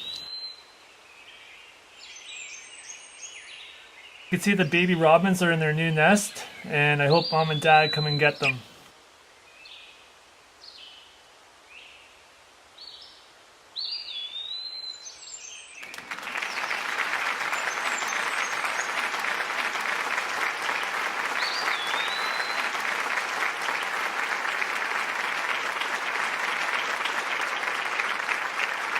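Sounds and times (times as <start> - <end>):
baby birds chirping: 6.0 - 8.6.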